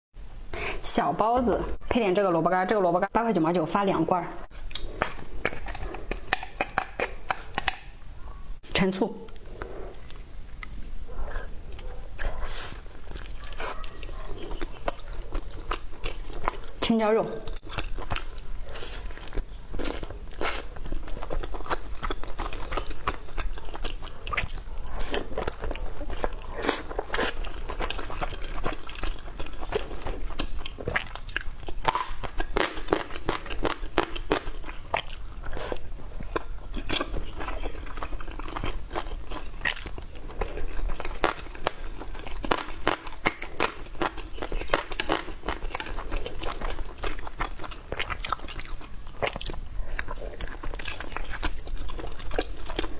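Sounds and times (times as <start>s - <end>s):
person chewing crunchy food: 4.4s - 8.6s, 9.3s - 16.8s, 17.4s - 52.9s
wet mouth clicks: 4.6s - 7.9s, 9.3s - 16.8s.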